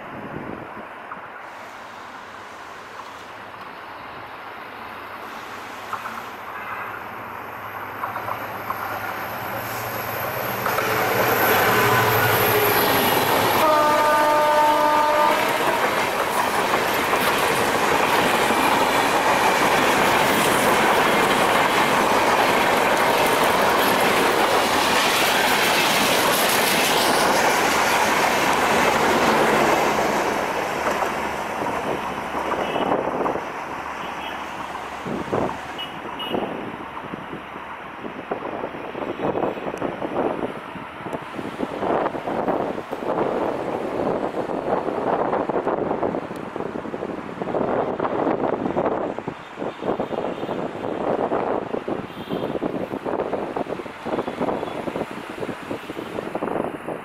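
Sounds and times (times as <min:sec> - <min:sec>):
diesel locomotive engine rumbling: 0:00.1 - 0:57.0
train horn blast: 0:06.6 - 0:07.0, 0:11.6 - 0:16.0.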